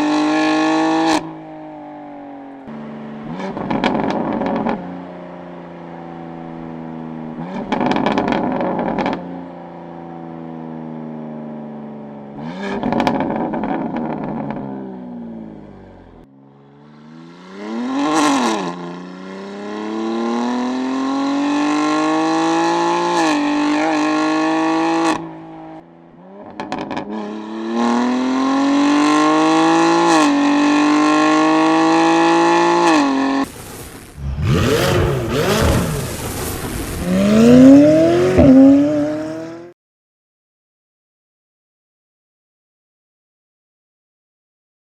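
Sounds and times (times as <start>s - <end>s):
car engine accelerating hard: 2.6s - 9.3s, 16.7s - 39.8s
gear change: 34.0s - 39.7s.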